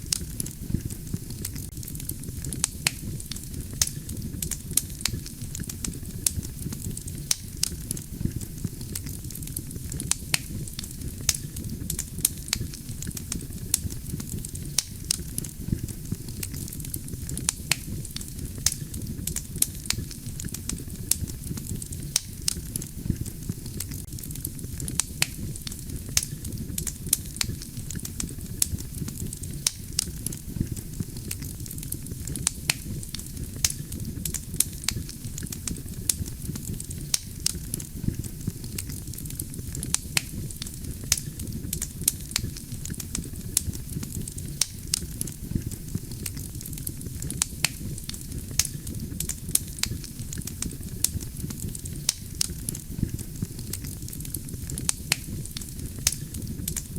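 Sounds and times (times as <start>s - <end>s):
logs crackling and popping: 0.0s - 56.9s
low rumble of flames: 0.0s - 56.9s.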